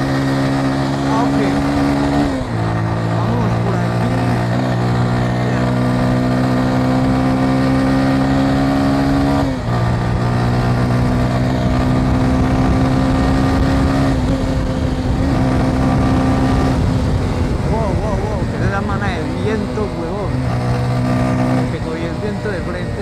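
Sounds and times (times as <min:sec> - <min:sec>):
motorcycle engine accelerating: 0:00.0 - 0:23.0
wind rumble on microphone: 0:09.3 - 0:23.0.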